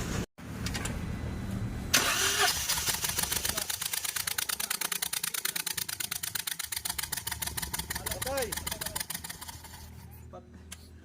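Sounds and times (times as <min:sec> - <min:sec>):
engine running with fast ticking: 0:02.5 - 0:10.0.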